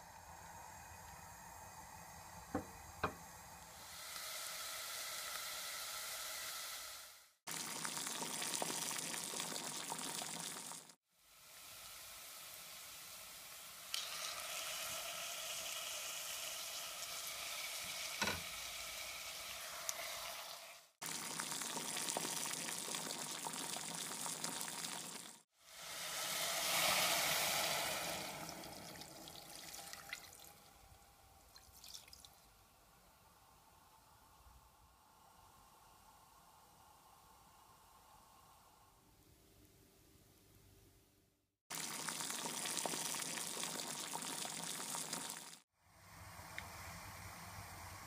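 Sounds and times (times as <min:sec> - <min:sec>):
food sizzling in oil: 0:03.9 - 0:30.4
water poured into pot: 0:07.5 - 0:11.0, 0:11.9 - 0:30.7, 0:31.5 - 0:32.4, 0:41.7 - 0:45.6.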